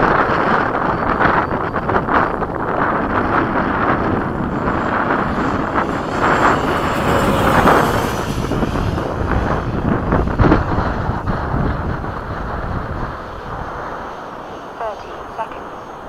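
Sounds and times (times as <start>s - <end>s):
electric ducted fan whine: 0.0s - 16.0s
wind buffeting microphone: 0.0s - 16.0s.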